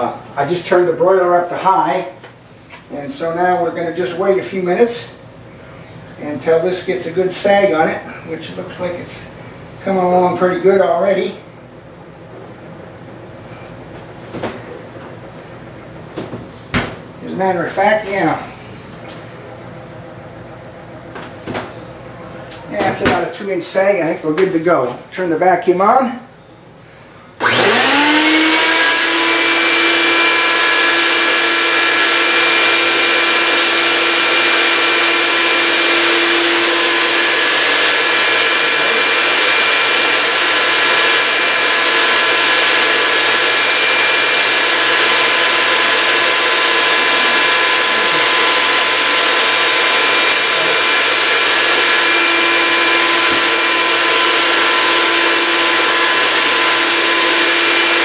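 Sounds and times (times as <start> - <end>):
vacuum motor whining: 27.4 - 58.0.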